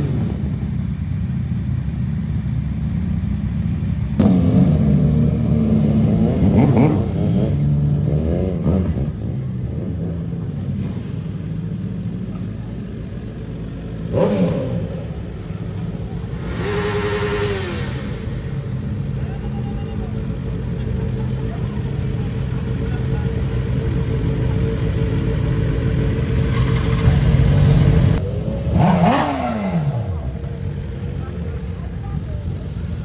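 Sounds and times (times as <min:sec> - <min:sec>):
motorcycle engines revving: 0:00.0 - 0:33.0.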